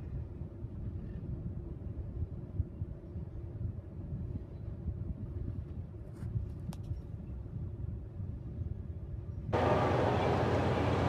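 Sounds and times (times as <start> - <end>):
freight train cars rumbling past: 9.6 - 11.0.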